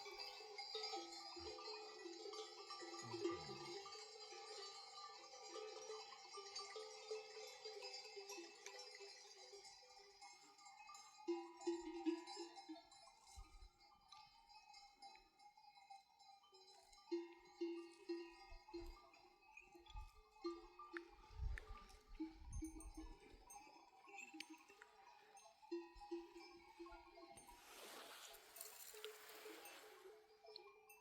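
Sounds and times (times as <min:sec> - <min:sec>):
sheep bells clinking: 0:00.0 - 0:31.0.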